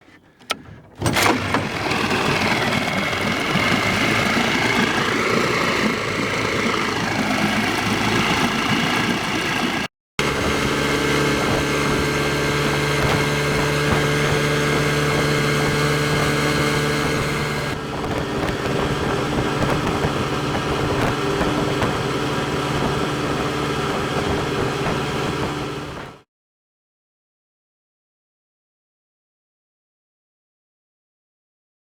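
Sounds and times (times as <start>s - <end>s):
clicks: 0.0s - 2.8s
outboard motor running: 0.0s - 26.2s.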